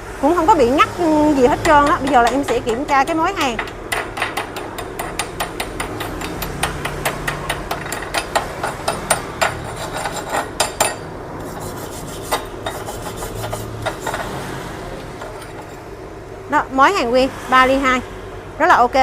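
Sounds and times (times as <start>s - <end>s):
sharp metal taps: 1.5s - 11.1s.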